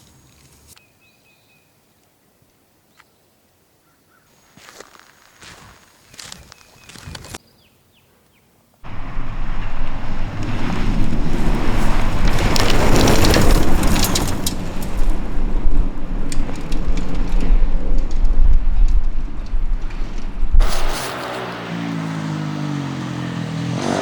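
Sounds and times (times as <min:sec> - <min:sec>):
spraying grit: 0:20.6 - 0:21.9
rally car engine racing past: 0:21.0 - 0:24.0.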